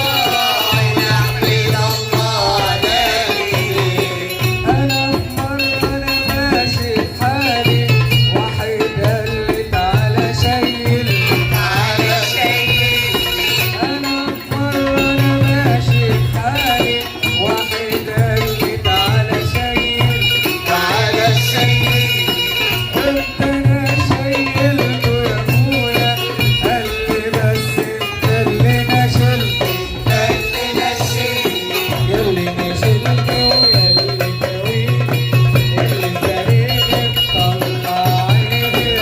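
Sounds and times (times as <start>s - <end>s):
percussion steady beat: 0.0s - 39.0s.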